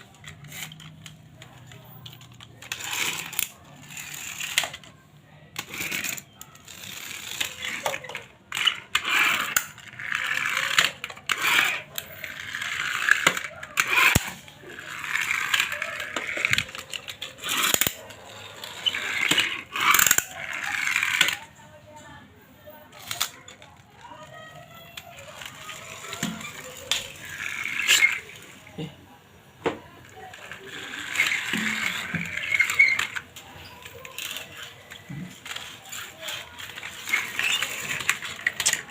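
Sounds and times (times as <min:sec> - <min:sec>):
toy cars clattering: 0:00.0 - 0:28.9, 0:29.6 - 0:38.9.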